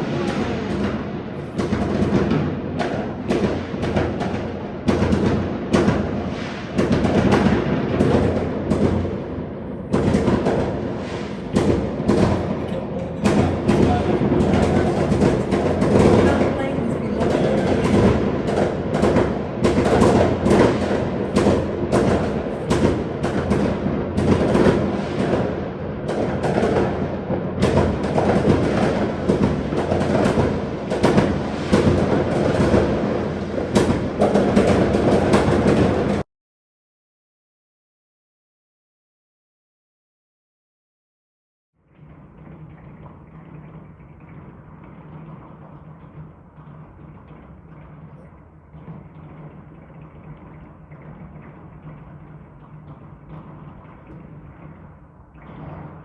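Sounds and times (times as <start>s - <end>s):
fireworks bangs with rumbling echo: 0.0s - 36.2s, 41.9s - 56.0s
low rumble: 7.7s - 19.7s.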